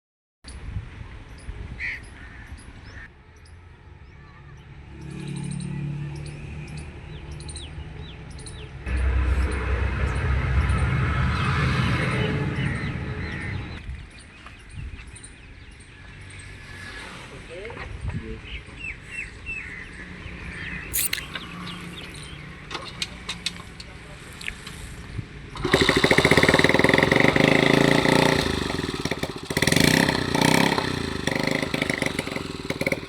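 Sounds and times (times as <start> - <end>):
loud low rumble: 8.9 - 13.2
birds chirping: 18.4 - 22.6, 25.7 - 33.0.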